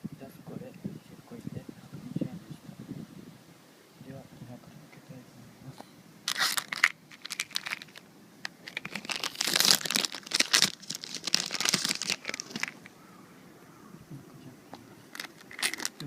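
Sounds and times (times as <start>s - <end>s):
sharp crackles: 6.3s - 13.1s, 14.7s - 16.0s.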